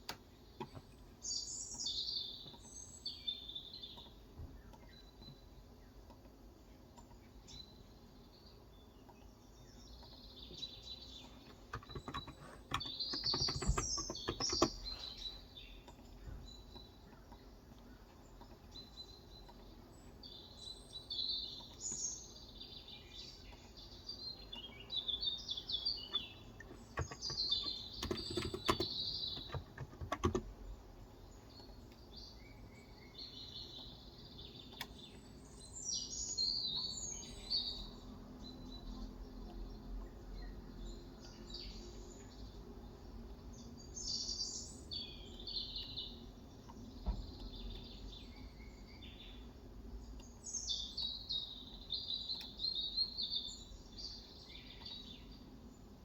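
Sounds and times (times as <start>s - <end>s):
small birds chirping: 0.0s - 56.0s
quick keyboard typing: 11.7s - 15.0s, 26.6s - 30.5s.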